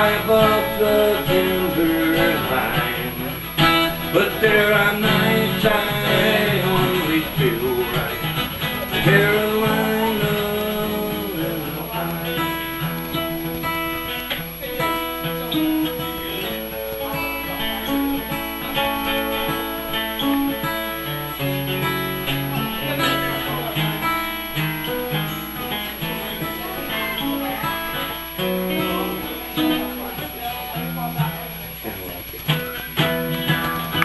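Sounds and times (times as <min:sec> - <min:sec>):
acoustic guitar playing: 0:00.0 - 0:34.0.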